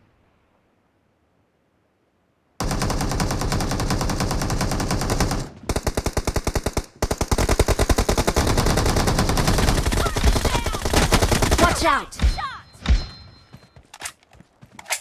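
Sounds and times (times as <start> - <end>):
video game automatic gunfire: 2.6 - 11.9.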